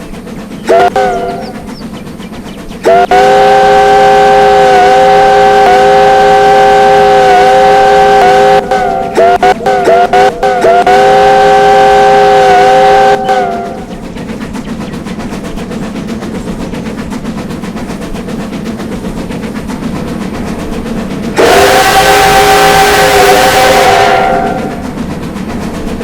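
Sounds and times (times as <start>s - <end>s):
train rumbling along track: 0.0s - 26.0s
locomotive chime whistle: 0.6s - 2.1s, 2.8s - 14.0s, 21.4s - 25.0s.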